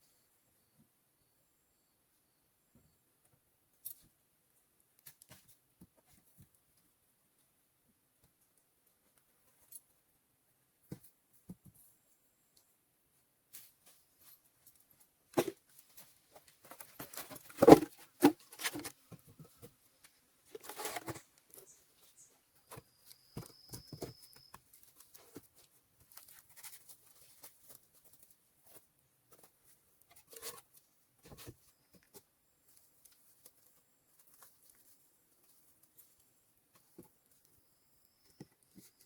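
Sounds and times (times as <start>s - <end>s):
rustling and crackling handling: 13.5s - 39.0s.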